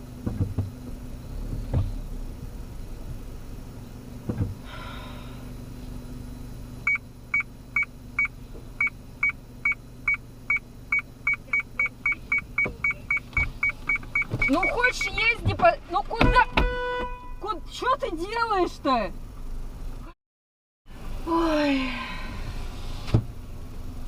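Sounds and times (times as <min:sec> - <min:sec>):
low engine hum: 0:00.0 - 0:20.2, 0:20.9 - 0:24.0
parking sensor beeping: 0:06.8 - 0:15.4.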